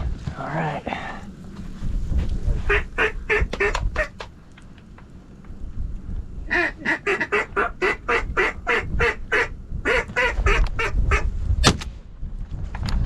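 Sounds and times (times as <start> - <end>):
wind rumble on microphone: 0.0 - 13.0
duck quacking: 2.7 - 4.1, 6.5 - 11.3.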